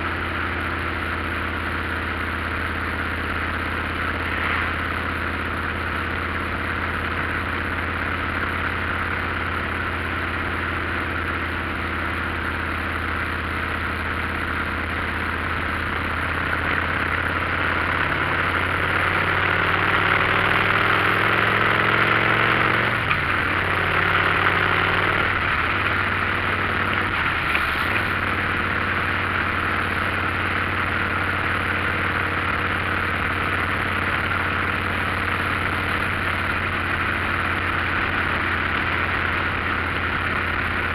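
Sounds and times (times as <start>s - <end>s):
motorcycle engine running: 0.0s - 40.9s
steady rushing noise: 15.2s - 40.9s.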